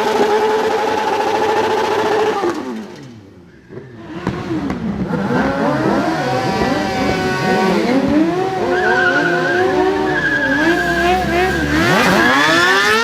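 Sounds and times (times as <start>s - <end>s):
motorcycle engine revving: 0.0s - 13.0s
tyre squeal: 6.6s - 13.0s.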